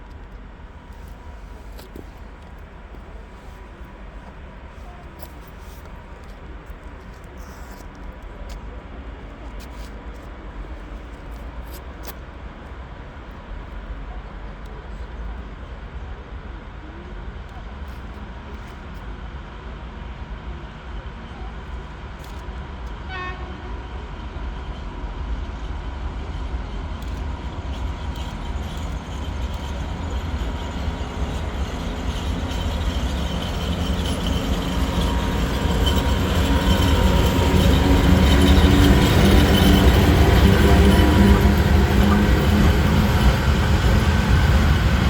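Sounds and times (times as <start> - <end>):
train rumble approaching: 20.8 - 45.0.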